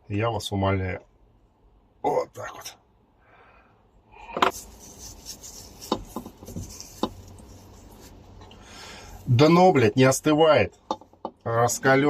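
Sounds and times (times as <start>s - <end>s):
scraping and rustling: 4.4s - 8.4s.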